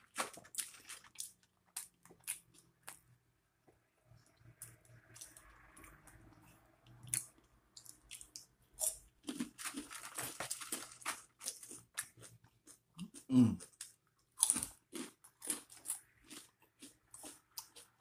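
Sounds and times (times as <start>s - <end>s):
person chewing and crunching food: 0.0s - 3.2s, 4.1s - 18.0s.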